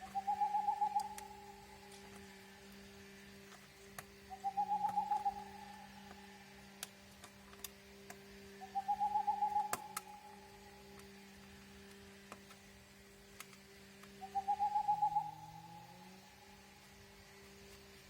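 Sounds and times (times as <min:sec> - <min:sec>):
trilling animal call: 0:00.0 - 0:01.6, 0:04.3 - 0:06.4, 0:08.6 - 0:10.5, 0:14.2 - 0:16.2
faint steady hum: 0:00.0 - 0:18.0
sharp clicks: 0:09.6 - 0:10.4.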